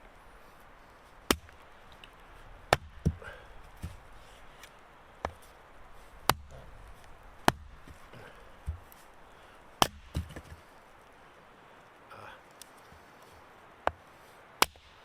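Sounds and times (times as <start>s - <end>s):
wood chopping strikes: 1.3s - 4.0s, 6.2s - 9.0s, 9.8s - 10.7s, 14.6s - 15.0s.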